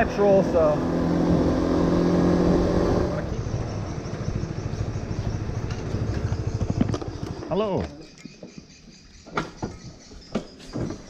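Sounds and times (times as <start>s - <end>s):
motorbike engine running: 0.0s - 8.5s.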